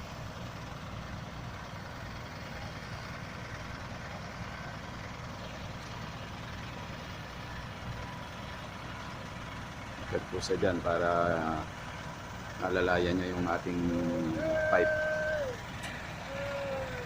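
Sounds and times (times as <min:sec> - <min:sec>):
heavy vehicle engine idling: 0:00.0 - 0:17.0.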